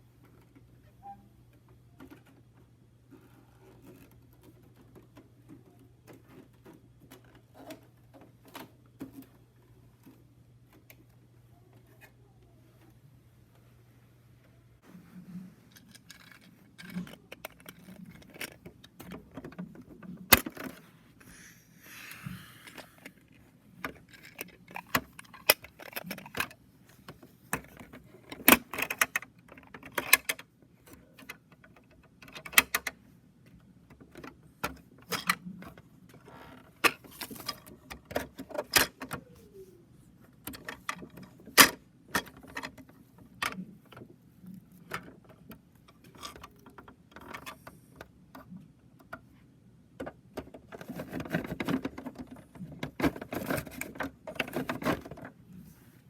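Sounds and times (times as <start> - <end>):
toy truck clicks and rattles: 15.7 - 20.8, 22.7 - 26.6, 27.6 - 33.0.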